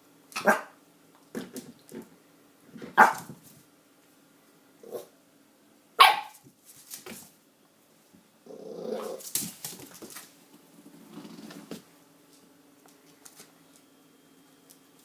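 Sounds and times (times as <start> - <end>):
dog barking: 0.4 - 0.8, 3.0 - 3.3, 6.0 - 6.4.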